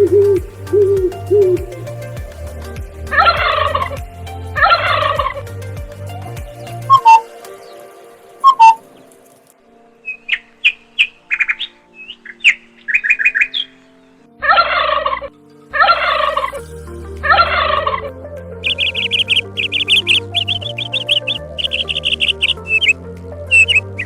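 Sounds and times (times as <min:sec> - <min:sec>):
loud harsh bird calls: 0:06.6 - 0:09.2, 0:10.0 - 0:16.6, 0:17.3 - 0:24.0
bird chirps and whistles: 0:18.7 - 0:23.9.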